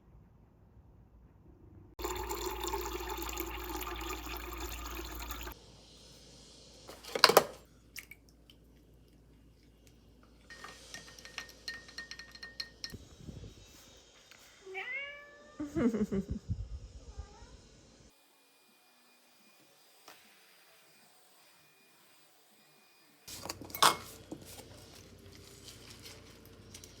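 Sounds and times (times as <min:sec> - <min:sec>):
water running: 0:02.0 - 0:05.6.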